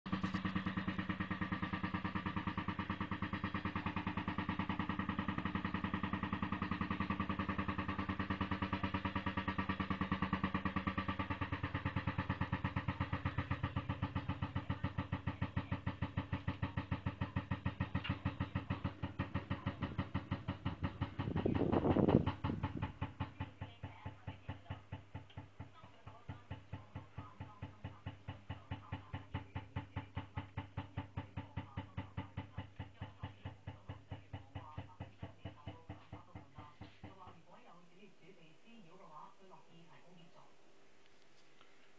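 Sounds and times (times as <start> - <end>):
vent flap banging and rattling: 15.4 - 23.4.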